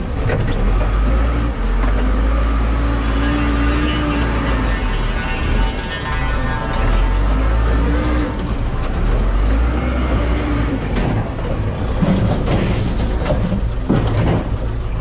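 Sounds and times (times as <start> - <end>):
diesel engine rumbling: 0.0 - 15.0
debris knocking and clanking: 10.8 - 15.0.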